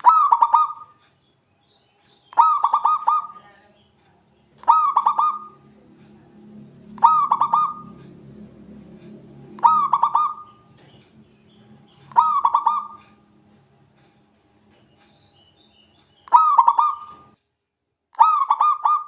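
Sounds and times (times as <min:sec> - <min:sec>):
dove cooing: 0:00.0 - 0:01.0, 0:02.3 - 0:03.6, 0:04.6 - 0:05.8, 0:06.8 - 0:08.4, 0:09.2 - 0:11.0, 0:12.0 - 0:13.2, 0:16.3 - 0:17.4, 0:18.2 - 0:19.0.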